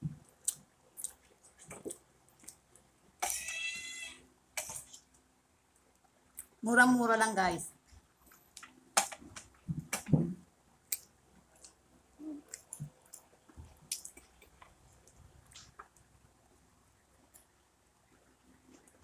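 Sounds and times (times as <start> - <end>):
people chewing soft brownies: 0.0 - 3.5, 10.8 - 19.0.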